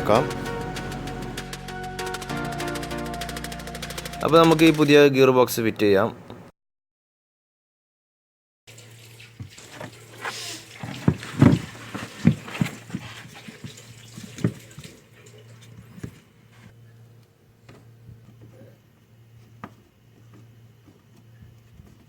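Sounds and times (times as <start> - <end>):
parts knocking and clunking: 10.8 - 13.5.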